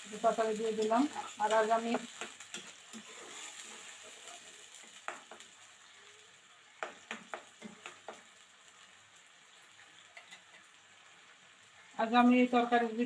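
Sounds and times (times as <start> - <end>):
onions sizzling in oil: 0.0 - 13.0
metal spatula scraping pan: 0.7 - 4.7.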